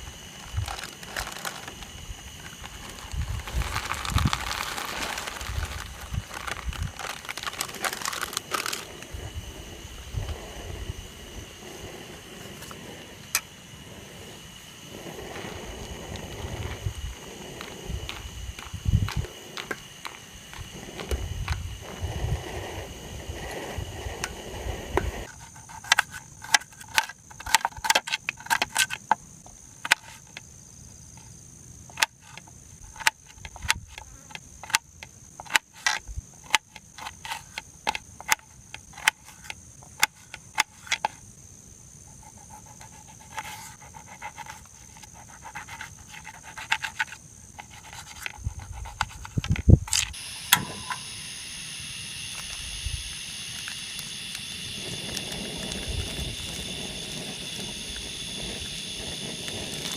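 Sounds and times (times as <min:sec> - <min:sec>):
high-pitched insect drone: 0:00.0 - 0:26.3, 0:40.4 - 0:59.9.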